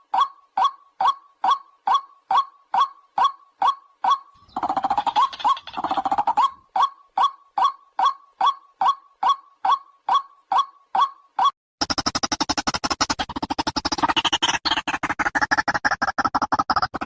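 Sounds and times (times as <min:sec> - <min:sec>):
harsh rising bird calls: 0:00.1 - 0:11.5
waterhen calling: 0:01.0 - 0:11.5.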